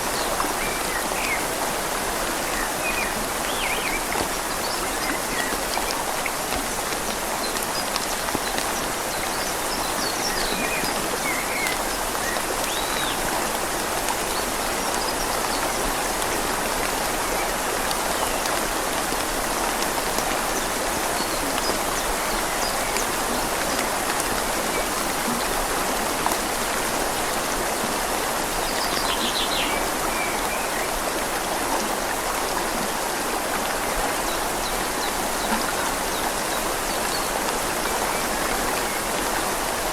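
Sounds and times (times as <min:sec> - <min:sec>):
rain pattering on leaves: 0:00.0 - 0:39.9
river flowing: 0:00.0 - 0:39.9.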